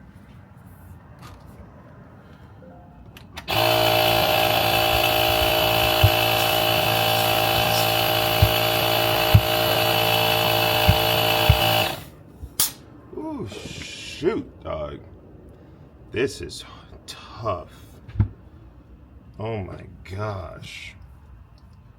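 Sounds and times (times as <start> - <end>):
air compressor hissing: 3.4 - 12.2.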